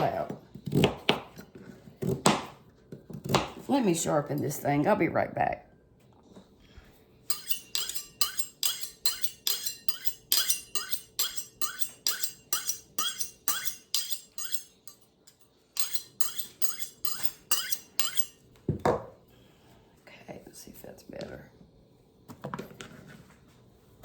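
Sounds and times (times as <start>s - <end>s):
knife blade scraping on sharpener: 7.3s - 18.4s.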